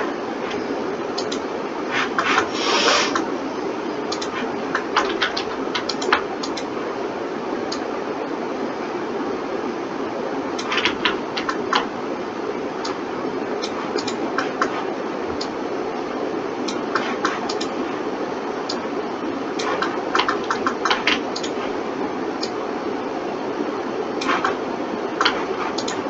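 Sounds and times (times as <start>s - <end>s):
computer fan hiss: 0.0s - 26.0s
mouse and keyboard clicks: 1.2s - 1.4s, 4.1s - 6.7s, 10.6s - 11.9s, 13.6s - 15.5s, 16.7s - 17.8s, 19.6s - 21.8s, 24.2s - 24.6s, 25.2s - 26.0s.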